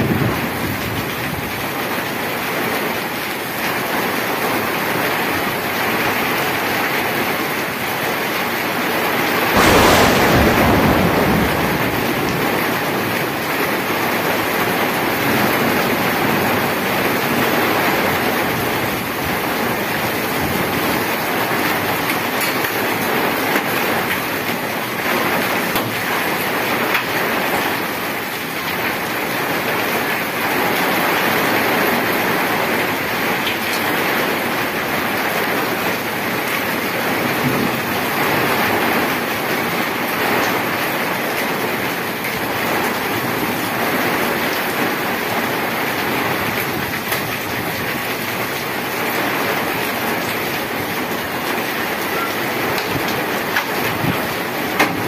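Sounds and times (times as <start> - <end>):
heavy rain on paved road: 0.0 - 55.0
low rumble: 9.6 - 13.2.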